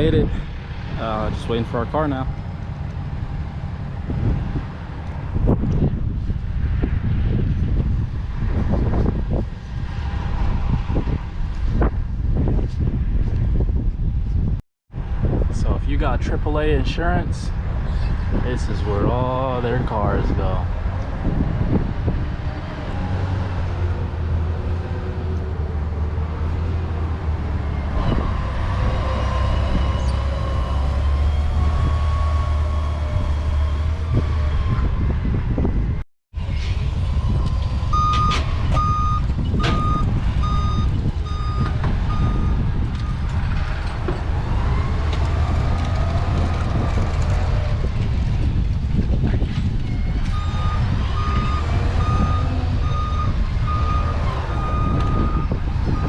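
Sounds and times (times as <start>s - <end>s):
truck engine humming: 21.7s - 35.1s
reversing alarm beeping: 37.2s - 43.2s, 50.0s - 56.0s.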